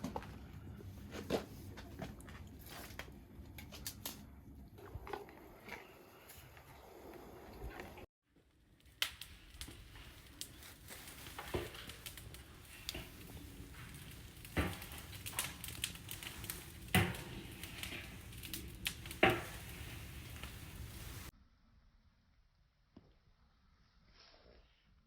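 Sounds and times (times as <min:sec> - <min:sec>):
twig fire crackling in stove: 0:00.0 - 0:21.3
sharp pops of fire: 0:08.7 - 0:21.3.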